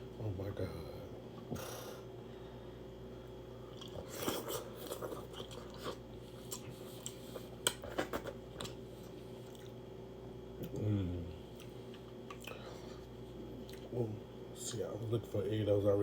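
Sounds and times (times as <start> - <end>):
faint steady hum: 0.0 - 16.0
wet chewing and biting clicks: 3.7 - 8.8.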